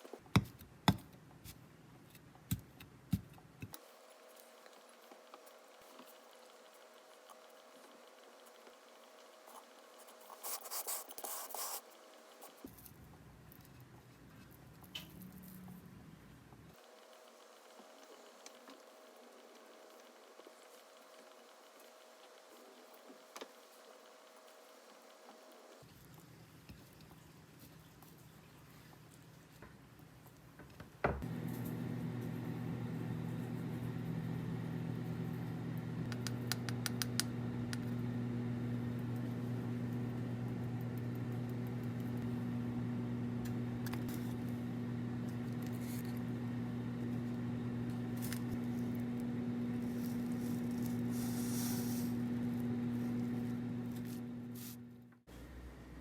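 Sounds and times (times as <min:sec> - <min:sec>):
appliance electrical hum: 0:30.5 - 0:56.0.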